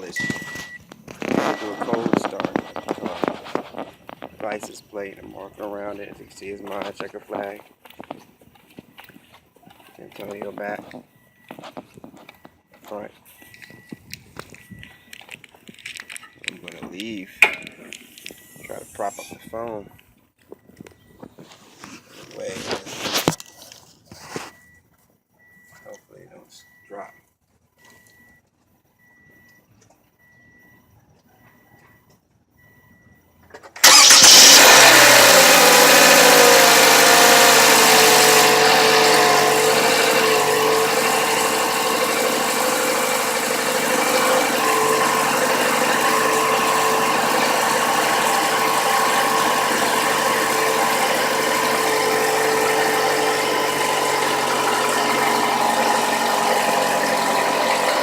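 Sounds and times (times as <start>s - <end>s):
car engine starting and idling: 0.0s - 7.5s, 33.4s - 58.0s
faint chime beeps: 1.4s - 3.3s.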